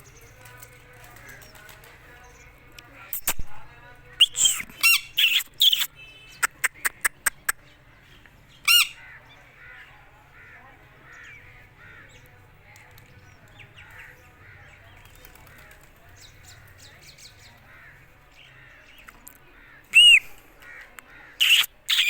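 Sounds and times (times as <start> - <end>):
parrot screeching: 8.7 - 9.0, 21.4 - 22.0.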